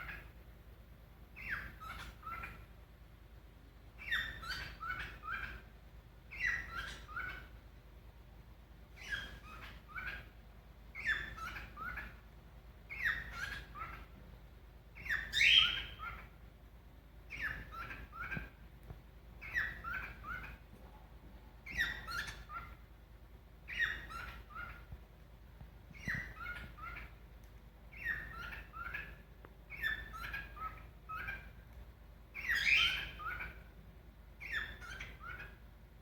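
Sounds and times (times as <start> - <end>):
cockatiel whistling: 1.4 - 2.6, 4.0 - 5.6, 6.3 - 7.5, 9.0 - 10.3, 11.0 - 12.1, 12.9 - 14.0, 15.0 - 16.3, 17.3 - 18.5, 19.4 - 20.6, 21.6 - 22.8, 23.7 - 24.9, 26.0 - 27.1, 27.9 - 31.5, 32.4 - 33.6, 34.4 - 35.6.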